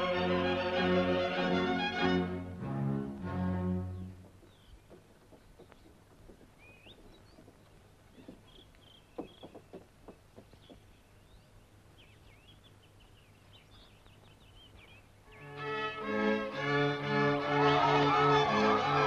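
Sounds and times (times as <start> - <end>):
faint birds chirping: 3.2 - 16.1
quick knocks or taps: 4.1 - 10.9.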